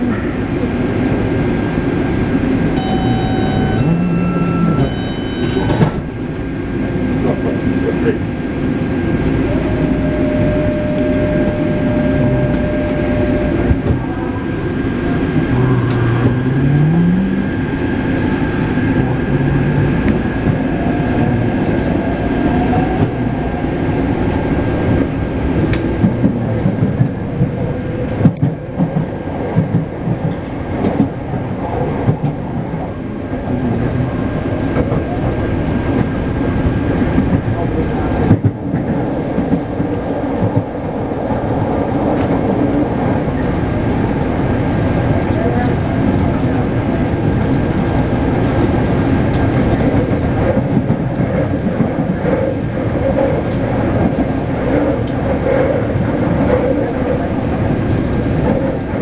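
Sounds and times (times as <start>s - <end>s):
metro train running: 0.0s - 59.0s
tone climbing in pitch: 2.8s - 6.1s, 9.5s - 14.0s
thin steady whine: 9.5s - 14.2s.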